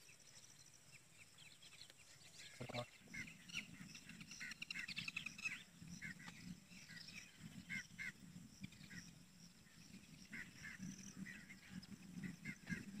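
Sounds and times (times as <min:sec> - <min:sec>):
low steady background noise: 0:00.0 - 0:13.0
birds calling in short bursts: 0:01.8 - 0:08.1.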